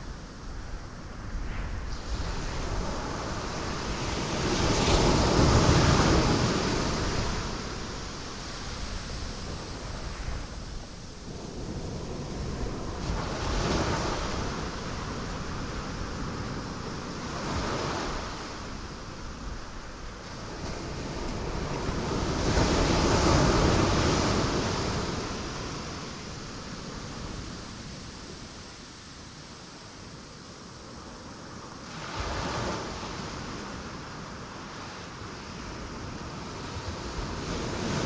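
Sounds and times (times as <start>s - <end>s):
waves crashing on rocks: 2.0s - 28.0s.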